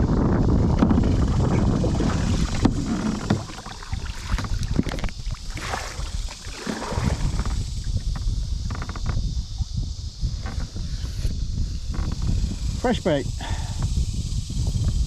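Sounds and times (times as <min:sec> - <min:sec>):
wind buffeting microphone: 0:00.0 - 0:15.0
water splashes: 0:00.9 - 0:08.0
small knocks on kayak: 0:02.4 - 0:09.2.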